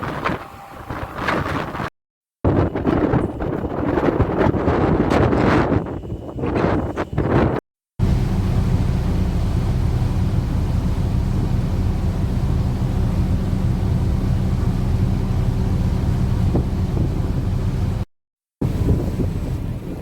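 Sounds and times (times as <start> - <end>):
ship engines droning: 0.0 - 1.9, 8.0 - 20.0
wind on microphone: 0.0 - 9.8, 12.2 - 18.0, 18.6 - 20.0.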